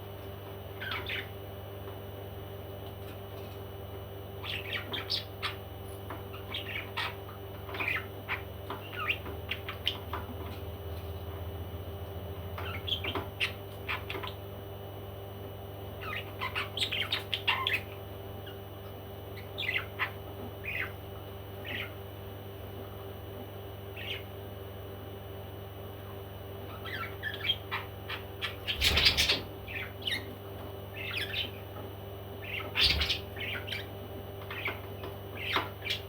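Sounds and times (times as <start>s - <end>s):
steady background hum: 0.0s - 36.0s
parrot chirping and squawking: 0.8s - 1.4s, 4.4s - 10.3s, 12.6s - 14.4s, 16.0s - 18.6s, 19.4s - 21.0s, 21.6s - 22.0s, 24.0s - 24.3s, 26.1s - 31.8s, 32.4s - 36.0s.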